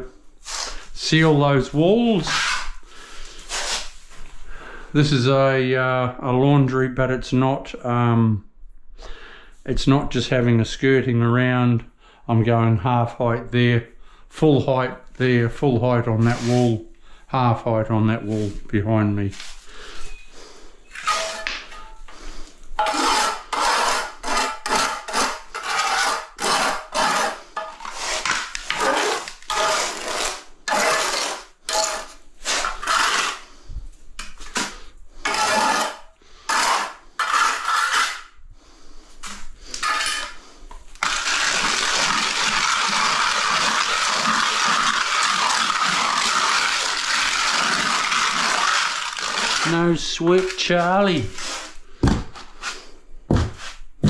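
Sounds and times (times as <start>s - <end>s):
cup grinder running: 41.0s - 49.6s.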